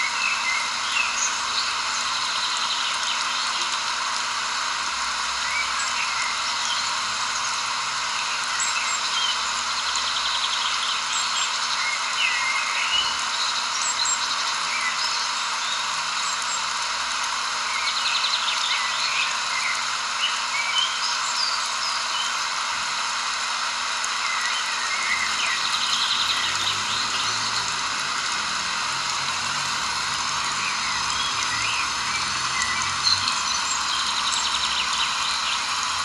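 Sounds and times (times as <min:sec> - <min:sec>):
small birds chirping: 0:17.7 - 0:35.7
steady hiss: 0:20.0 - 0:35.3
bird trills: 0:21.3 - 0:32.8.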